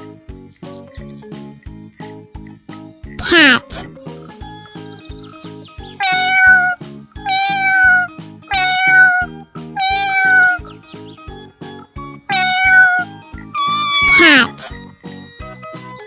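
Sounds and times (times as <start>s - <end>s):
cat meowing: 3.2s - 3.9s, 6.0s - 10.6s, 12.3s - 14.8s.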